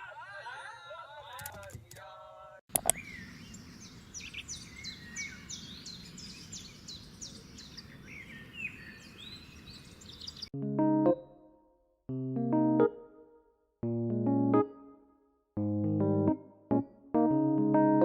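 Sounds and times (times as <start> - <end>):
birds chirping: 2.7 - 10.5
outdoor background hiss: 2.8 - 10.4
piano music: 10.6 - 15.0, 15.6 - 18.0.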